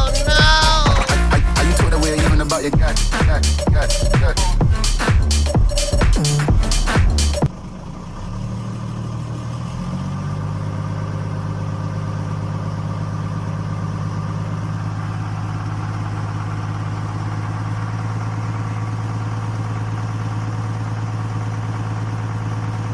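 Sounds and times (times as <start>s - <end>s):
music: 0.0s - 7.5s
engine idling: 0.0s - 22.9s.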